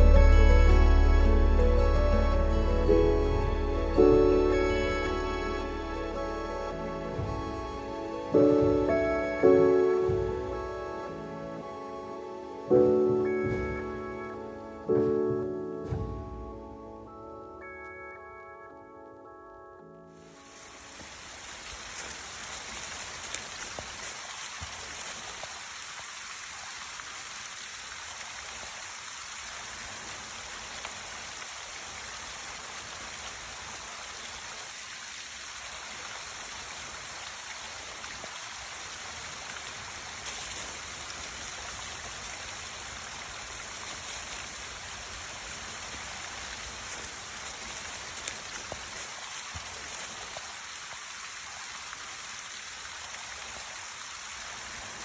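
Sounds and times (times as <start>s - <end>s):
meltwater running under ice: 20.4s - 55.0s.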